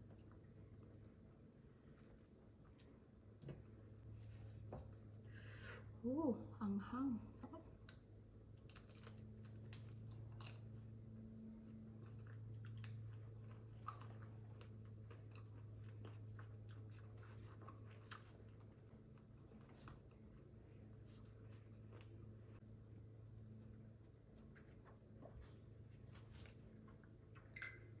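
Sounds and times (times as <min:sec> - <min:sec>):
faint low hum: 0:00.0 - 0:28.0
chewing and crunching prawns: 0:08.6 - 0:10.9, 0:11.6 - 0:22.6.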